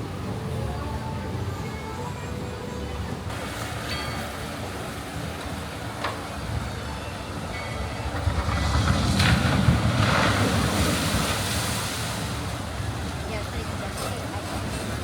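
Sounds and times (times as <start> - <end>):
train car rumbling on track: 3.3 - 15.0.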